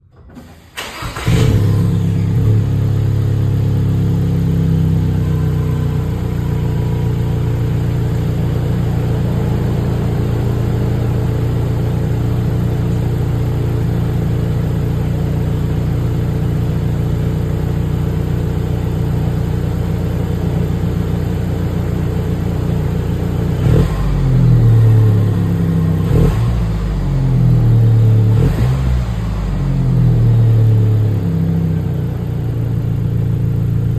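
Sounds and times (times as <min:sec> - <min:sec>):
car engine starting and idling: 0:00.0 - 0:33.9
engine revving: 0:00.8 - 0:15.6, 0:23.3 - 0:31.0.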